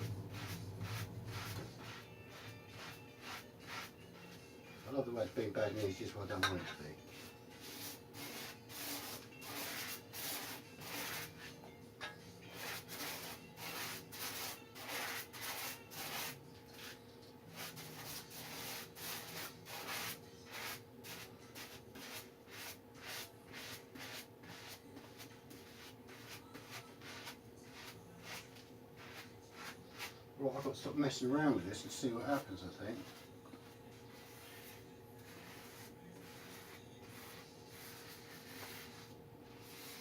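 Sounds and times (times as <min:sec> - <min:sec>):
rubbing wet tissue paper: 0:00.3 - 0:04.0.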